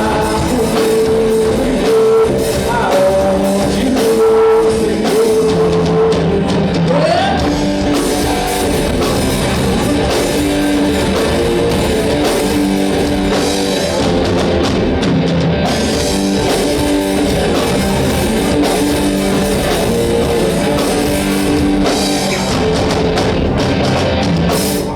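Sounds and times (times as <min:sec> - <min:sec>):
person singing: 0:00.0 - 0:10.2
drum kit: 0:00.0 - 0:24.9
electric guitar: 0:00.0 - 0:24.9.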